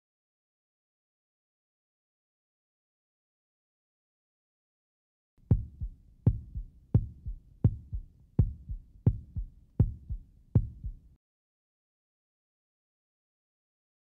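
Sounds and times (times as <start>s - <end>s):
heartbeat thumps: 5.4s - 11.0s.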